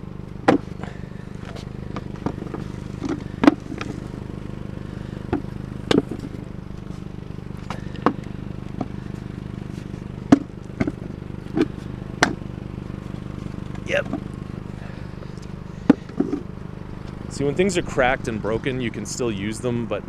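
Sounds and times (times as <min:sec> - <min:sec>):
steady low hum: 0:00.0 - 0:20.0
knocks and clatters: 0:05.3 - 0:06.9, 0:10.2 - 0:12.4.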